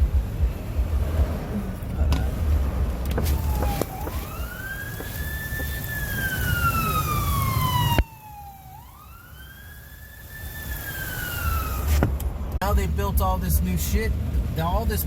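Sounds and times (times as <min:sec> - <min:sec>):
low road rumble: 0:00.0 - 0:15.0
siren wailing: 0:03.3 - 0:12.0.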